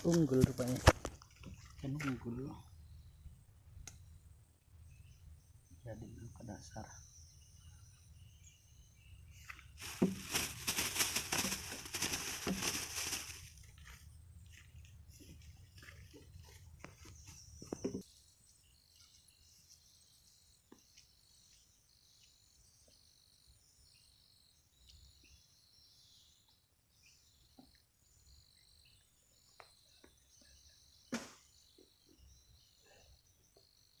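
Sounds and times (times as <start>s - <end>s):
insects chirping: 0.0s - 34.0s
handling rustle: 9.7s - 13.9s
sharp knock: 31.1s - 31.4s.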